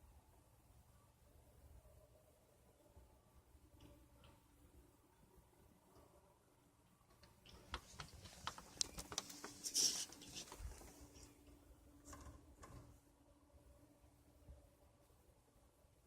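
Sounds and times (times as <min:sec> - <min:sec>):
faint clicks and taps: 0:07.1 - 0:11.3
short rustle: 0:07.8 - 0:11.4.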